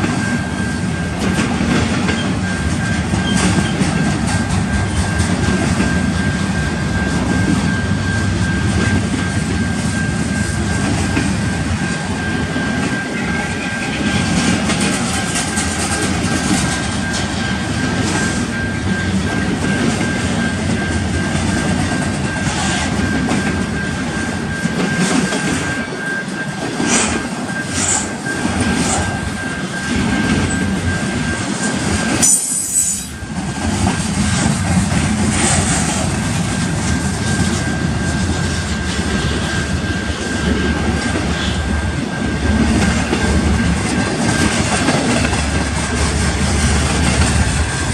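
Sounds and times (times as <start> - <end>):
freight train wheels rumbling: 0.0 - 47.9
high-pitched squeal: 22.3 - 34.0, 35.3 - 47.9.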